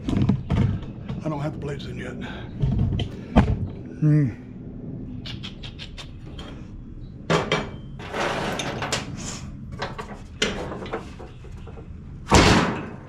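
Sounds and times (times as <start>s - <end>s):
metal parts scraping and clunking: 7.3s - 13.0s.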